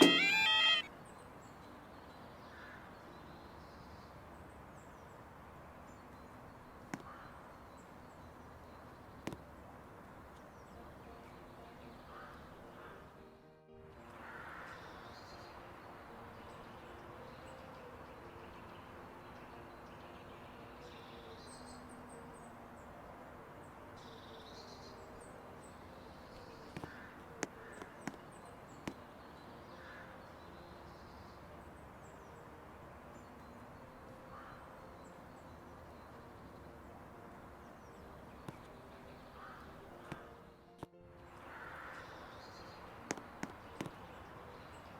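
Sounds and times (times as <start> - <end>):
birds calling: 0.0 - 1.0, 24.1 - 31.4, 37.7 - 40.4.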